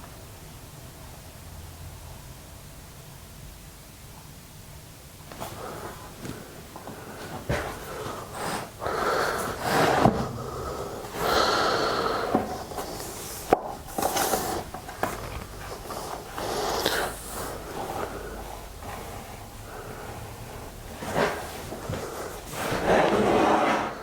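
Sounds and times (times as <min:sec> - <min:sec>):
wooden boards scraping: 0:21.0 - 0:24.0.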